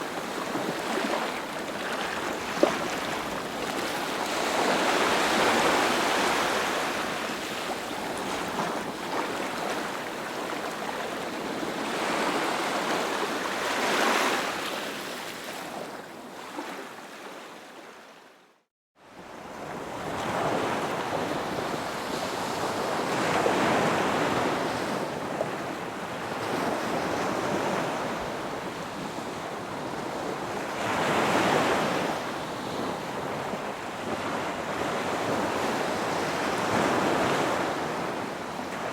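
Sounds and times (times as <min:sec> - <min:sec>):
sea waves breaking on beach: 0:00.0 - 0:16.9.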